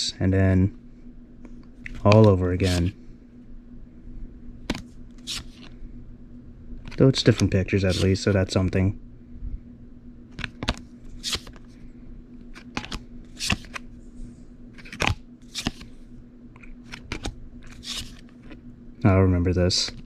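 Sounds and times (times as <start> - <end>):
playing cards being flipped: 1.9 - 2.9, 4.7 - 5.8, 6.8 - 8.2, 10.4 - 11.7, 12.5 - 13.9, 14.7 - 16.0, 16.8 - 18.6.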